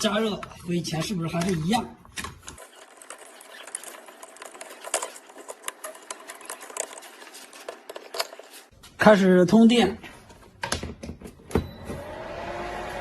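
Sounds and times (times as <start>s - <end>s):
small parts clicking and tapping: 0.1s - 8.7s.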